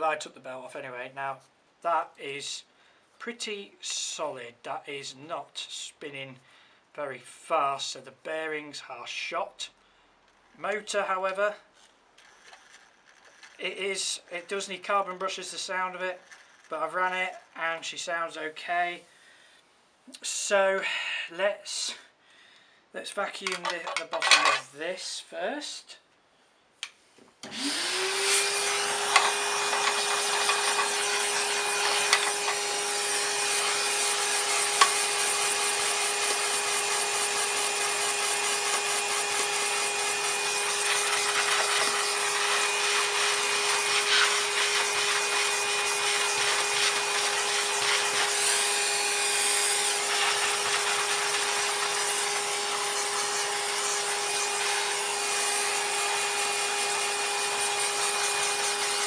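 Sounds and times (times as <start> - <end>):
vacuum cleaner running: 27.4 - 59.0.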